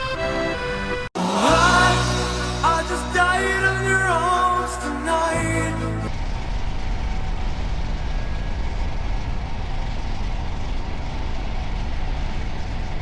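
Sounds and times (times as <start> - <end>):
wind and road rush: 5.5 - 13.0.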